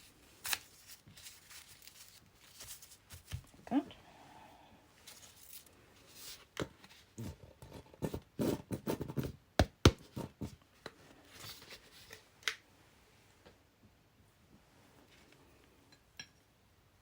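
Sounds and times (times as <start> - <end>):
paper rustling and scraping: 0.0 - 3.6, 5.0 - 7.4, 11.2 - 12.2.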